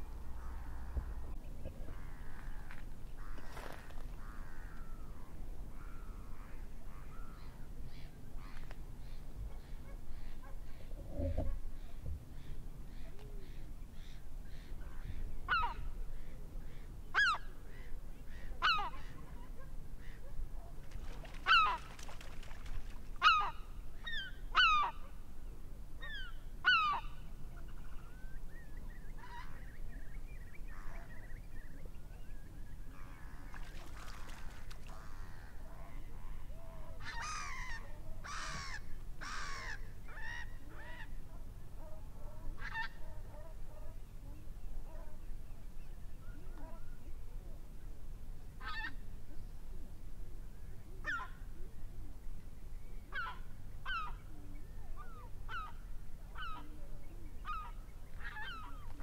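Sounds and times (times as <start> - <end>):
steady low rumble: 0.0 - 3.3
water birds calling: 0.0 - 25.2, 26.0 - 47.0.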